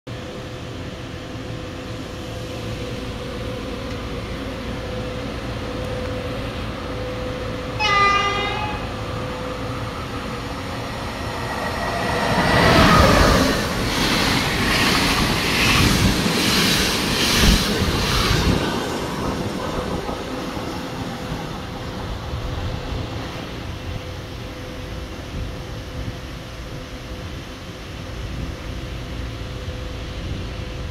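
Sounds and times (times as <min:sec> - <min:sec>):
train wheels rushing and clattering: 0:01.2 - 0:30.9
train horn blast: 0:07.8 - 0:09.1.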